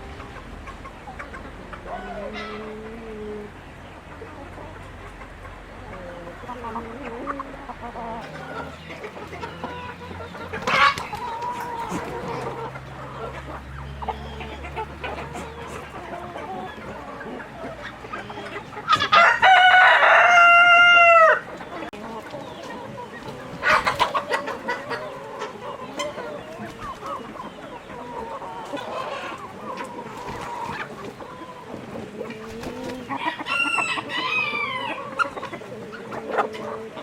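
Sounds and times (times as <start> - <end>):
hens clucking: 0.0 - 37.0
rooster crowing: 19.0 - 21.5, 33.1 - 35.3.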